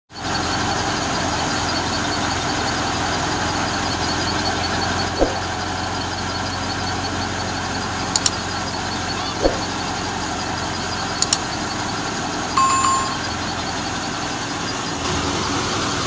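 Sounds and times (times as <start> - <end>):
tractor engine running: 0.1 - 16.0
faint high ticking: 8.2 - 10.0.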